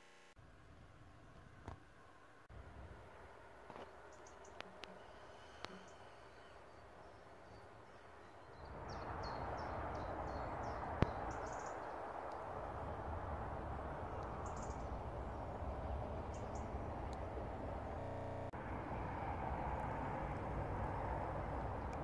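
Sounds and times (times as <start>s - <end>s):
birds chirping: 3.8s - 18.6s
steady rushing noise: 8.7s - 22.0s.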